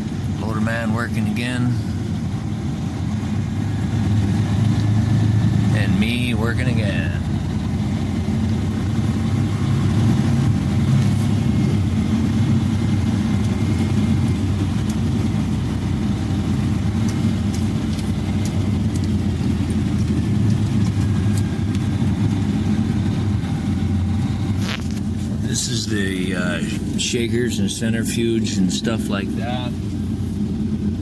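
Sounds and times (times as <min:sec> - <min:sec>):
truck engine rumbling: 0:00.0 - 0:31.0.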